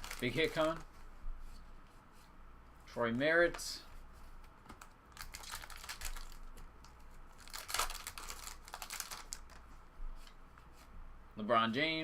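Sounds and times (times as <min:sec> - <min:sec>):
trading cards rustling and crinkling: 0:00.0 - 0:01.7, 0:03.3 - 0:10.8.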